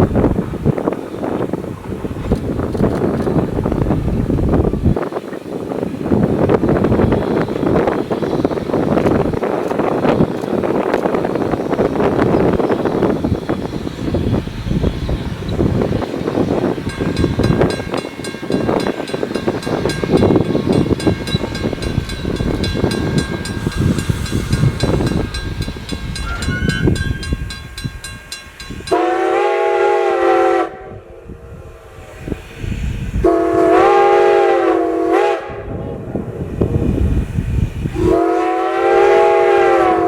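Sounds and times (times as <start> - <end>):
steam locomotive chuffing: 0.0 - 40.0
steam whistle blasts: 26.2 - 27.3, 28.9 - 31.9, 33.2 - 35.9, 37.9 - 40.0.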